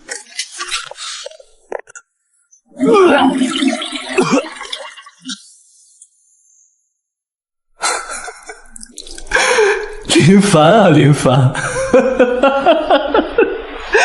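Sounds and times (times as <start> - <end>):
person making wordless vocal sounds: 2.7 - 5.4.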